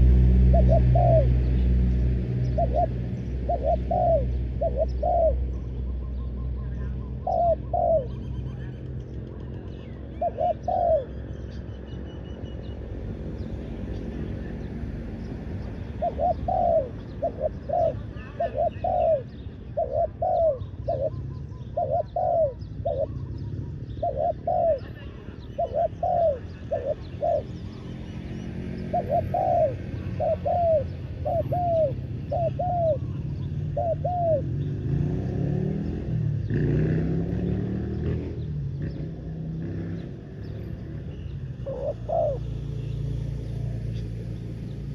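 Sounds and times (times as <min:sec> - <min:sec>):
dove cooing: 0:00.0 - 0:11.3, 0:15.2 - 0:35.1, 0:40.4 - 0:42.9.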